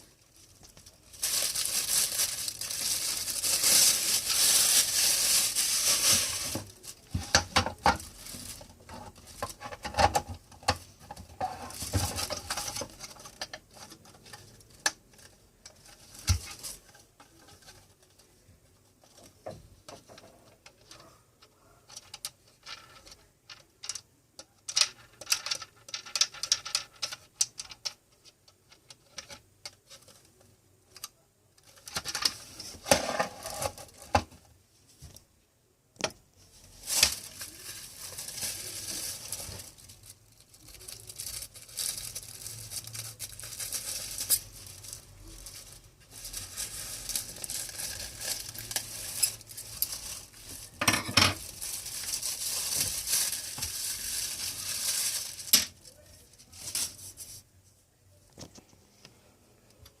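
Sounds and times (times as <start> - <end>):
plastic packaging crinkling: 0.0 - 18.4, 36.5 - 57.4.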